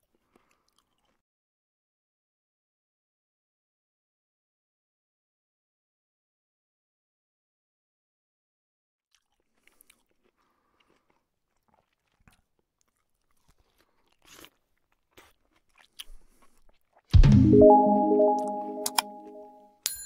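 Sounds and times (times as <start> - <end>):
person chewing food: 0.0 - 1.2, 9.1 - 17.1
musical jingle with deep boom: 17.2 - 19.5.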